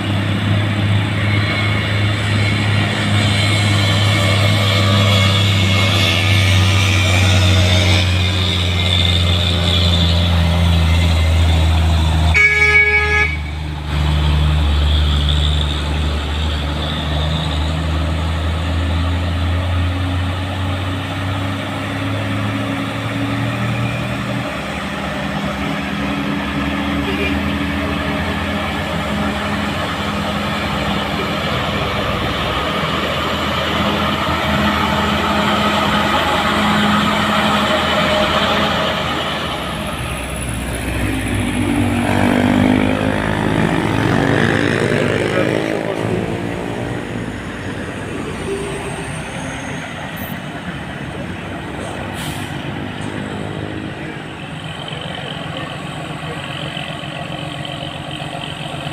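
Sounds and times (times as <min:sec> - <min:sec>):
diesel truck engines labouring: 0:00.0 - 0:58.9
truck horn toot: 0:12.3 - 0:13.7, 0:27.0 - 0:27.9.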